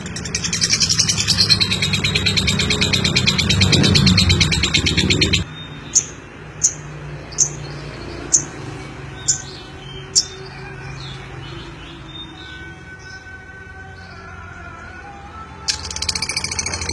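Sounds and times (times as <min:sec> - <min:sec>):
bird chattering trill: 0:00.0 - 0:06.8, 0:15.7 - 0:16.9.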